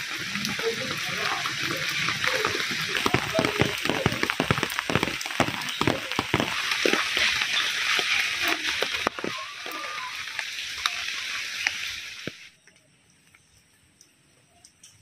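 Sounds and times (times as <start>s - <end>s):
rain on leaves and tarps: 0.0s - 15.0s
sharp drip taps: 2.0s - 9.4s.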